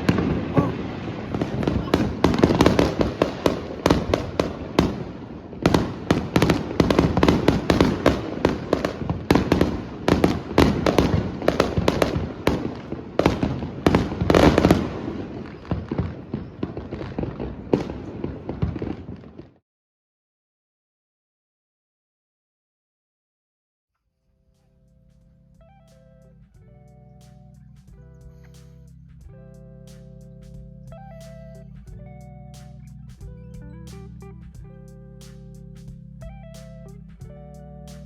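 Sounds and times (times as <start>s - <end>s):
fireworks bangs and pops: 0.0s - 19.6s.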